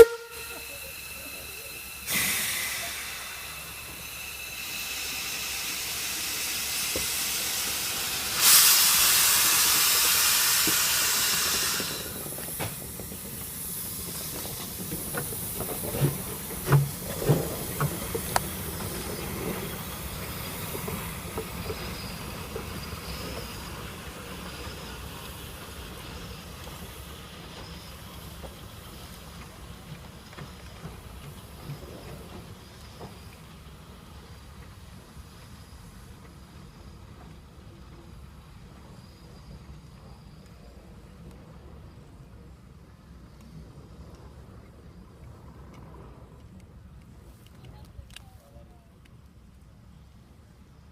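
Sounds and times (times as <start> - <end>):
loud blast of steam: 0.0 - 19.2
locomotive exhaust chuffs: 0.0 - 41.2
steam locomotive hissing steam: 0.0 - 44.0.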